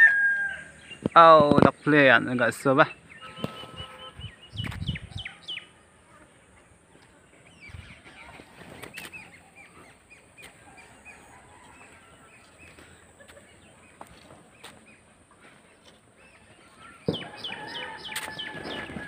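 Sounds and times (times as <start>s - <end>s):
small birds chirping: 0.7s - 19.0s
low muffled thuds: 17.0s - 17.4s.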